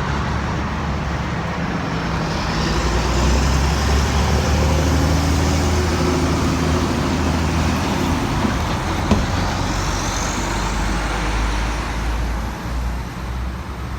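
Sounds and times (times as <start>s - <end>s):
truck engine drone: 0.0s - 13.9s
tyre and road noise: 0.0s - 13.9s
sharp knock: 8.5s - 9.5s.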